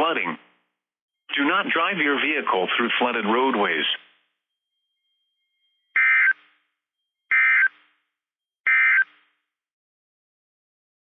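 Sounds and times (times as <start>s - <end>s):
raspy two-tone data bursts: 4.8s - 6.6s, 7.3s - 7.8s, 8.7s - 9.2s.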